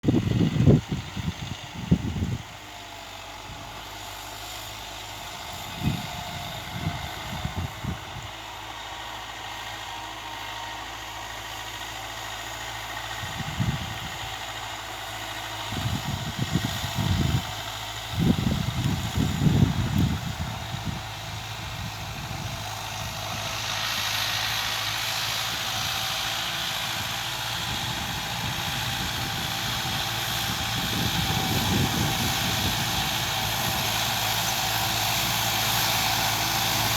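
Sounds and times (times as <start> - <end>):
wind buffeting microphone: 0.1 - 2.6, 5.2 - 8.4, 13.2 - 14.2, 15.7 - 36.9
motor running: 18.1 - 36.9.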